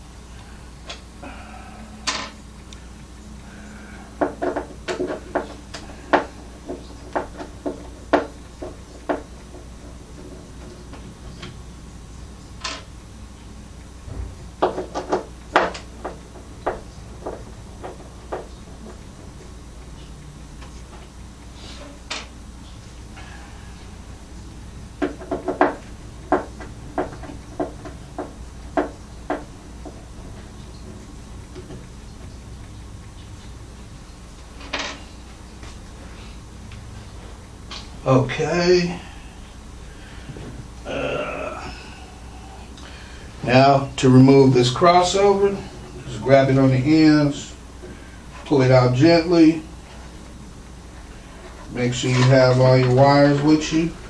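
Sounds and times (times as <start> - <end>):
steady low hum: 0.0 - 54.0
tools knocking inside speaker cabinet: 25.0 - 29.5.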